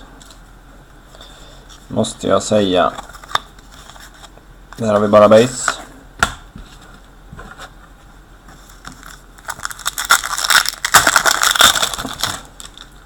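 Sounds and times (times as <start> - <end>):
plastic wrapper crinkling: 8.9 - 13.0.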